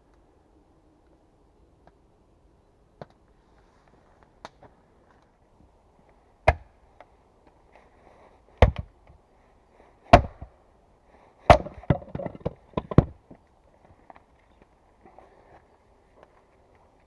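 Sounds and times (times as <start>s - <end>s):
axe chopping wood: 6.4s - 6.7s, 8.6s - 8.9s, 10.1s - 10.5s, 11.4s - 13.2s.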